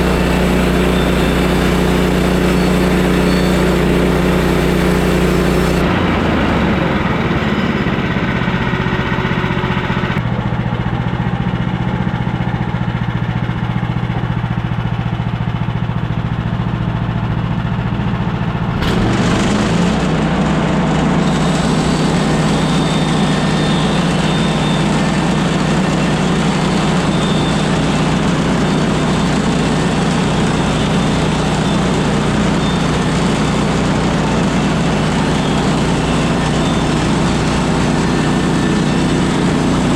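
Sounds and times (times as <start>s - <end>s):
sawmill gas engine running: 0.0s - 39.9s.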